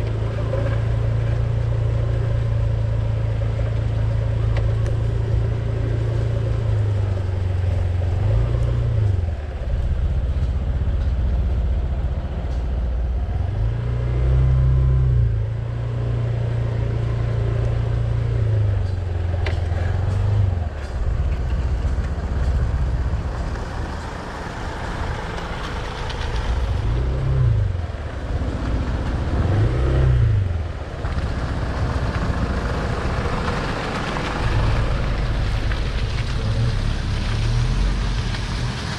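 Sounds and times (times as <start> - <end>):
vehicle engine running: 14.8 - 38.9.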